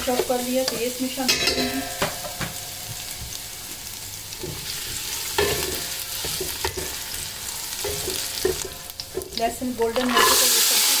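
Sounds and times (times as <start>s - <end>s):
garlic sizzling in hot oil: 0.0s - 11.0s
spoon knocking against pan: 0.2s - 2.6s.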